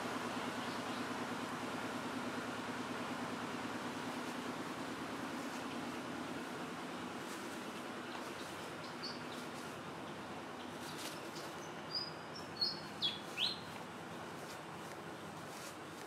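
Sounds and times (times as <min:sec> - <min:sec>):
steady low hum: 0:00.0 - 0:16.0
small bird chirping: 0:08.0 - 0:13.8.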